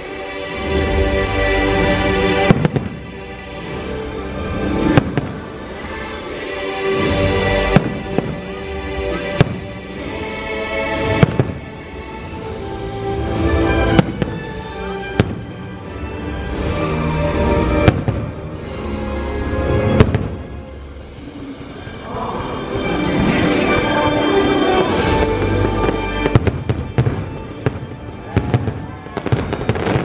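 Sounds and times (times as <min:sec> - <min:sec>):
soundtrack music: 0:00.0 - 0:30.0
fireworks bursting: 0:01.8 - 0:06.2, 0:07.0 - 0:12.4, 0:13.3 - 0:18.8, 0:19.8 - 0:20.6, 0:22.8 - 0:30.0.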